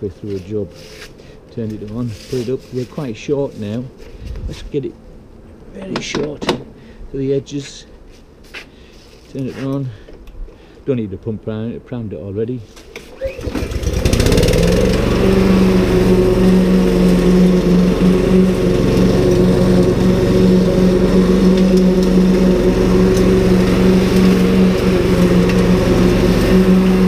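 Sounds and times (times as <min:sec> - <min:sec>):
lawn mower engine running: 0:13.1 - 0:27.0.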